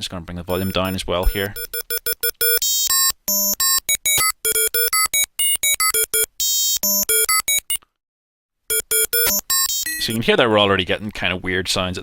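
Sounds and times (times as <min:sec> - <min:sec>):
buzzy synthesizer bleeps: 0:00.6 - 0:07.8.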